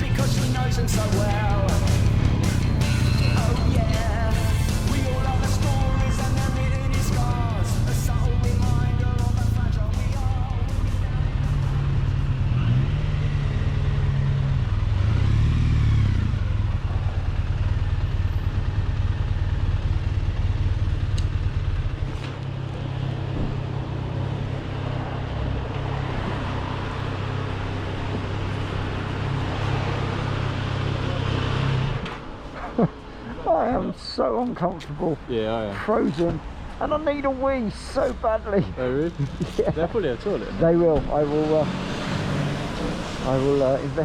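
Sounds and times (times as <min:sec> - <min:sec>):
motorcycle engine running: 0:00.0 - 0:24.2
wind and road noise: 0:00.0 - 0:44.0.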